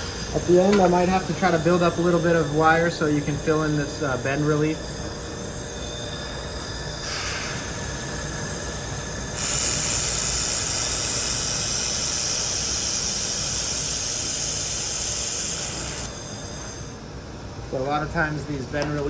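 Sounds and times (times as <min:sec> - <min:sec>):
laser welder high hiss: 0:00.0 - 0:17.0.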